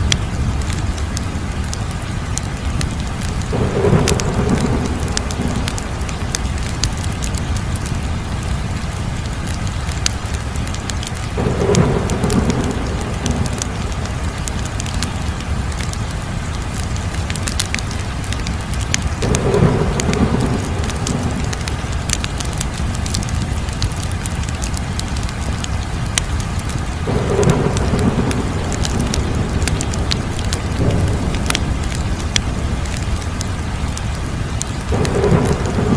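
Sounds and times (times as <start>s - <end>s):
fire crackling and popping: 0.0s - 35.9s.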